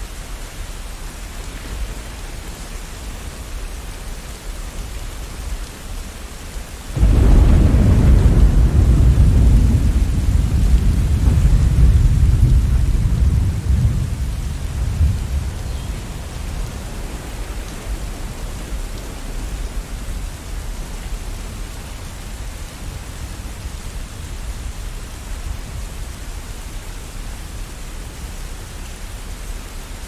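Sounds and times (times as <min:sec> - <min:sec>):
steady rain falling: 0:00.0 - 0:30.0
low rumble of thunder: 0:06.9 - 0:26.8.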